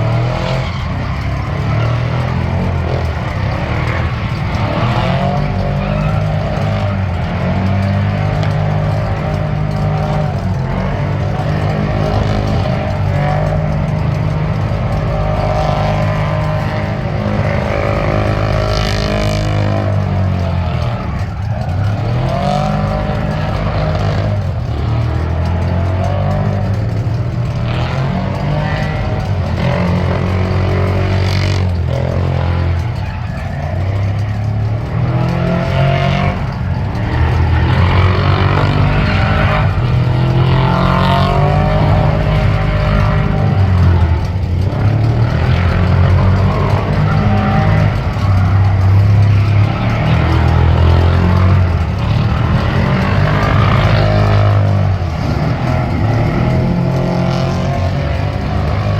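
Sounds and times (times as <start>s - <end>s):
truck engine revving: 0.0s - 58.9s.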